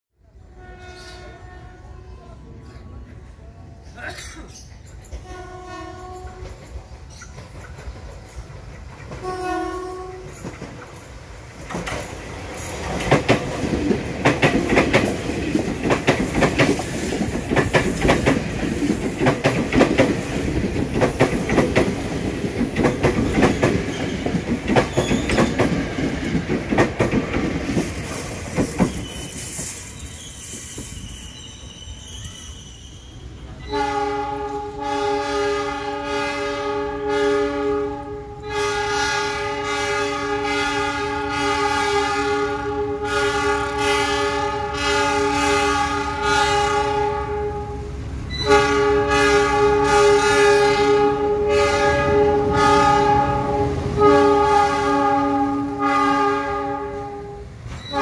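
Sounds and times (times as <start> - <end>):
train wheels clattering over rails: 4.6 - 31.1
locomotive horn blast: 5.2 - 6.6, 9.2 - 10.4, 33.6 - 58.0.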